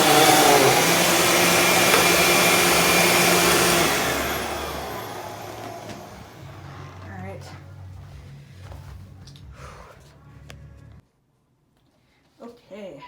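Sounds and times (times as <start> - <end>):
upright vacuum running: 0.0 - 9.0.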